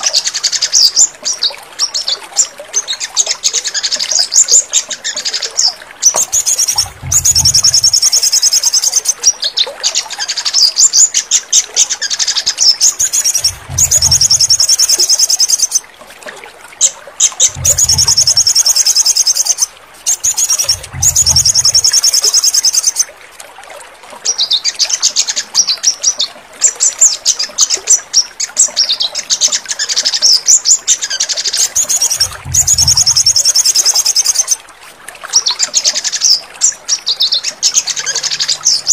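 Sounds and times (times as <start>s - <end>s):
trilled bird chirping: 6.1s - 9.2s, 12.9s - 15.8s, 17.4s - 23.0s, 31.6s - 34.6s
low thump: 13.5s - 14.4s, 17.5s - 18.4s, 32.2s - 33.2s.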